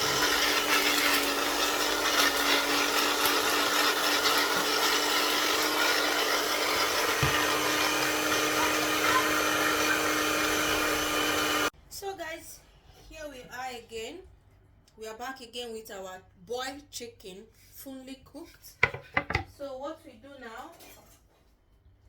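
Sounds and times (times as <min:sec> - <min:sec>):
blender grinding dry bread: 0:00.0 - 0:11.7.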